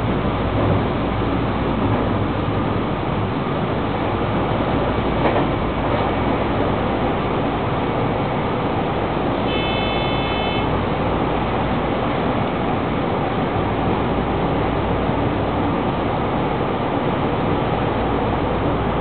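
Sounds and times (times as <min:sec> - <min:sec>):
train wheels on rails: 0:00.0 - 0:16.7
brief steady high tone: 0:09.4 - 0:10.7.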